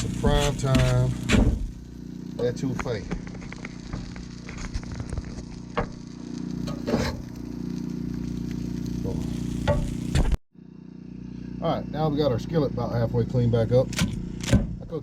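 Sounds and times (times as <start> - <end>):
food sizzling in a pot: 0.0 - 10.4
low hum: 0.0 - 15.0.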